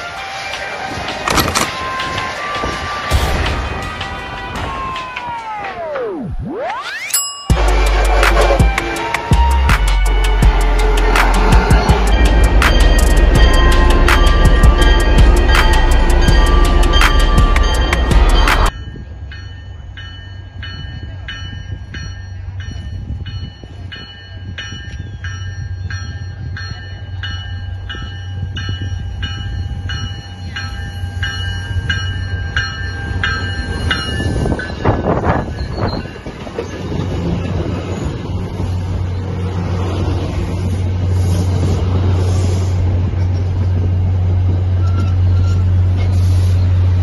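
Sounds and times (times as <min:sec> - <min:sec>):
train coaches rumbling past: 0:00.0 - 0:06.2, 0:07.5 - 0:47.0
train bell ringing: 0:07.0 - 0:39.4
diesel locomotive hum: 0:07.5 - 0:47.0
train horn blast: 0:07.6 - 0:16.2.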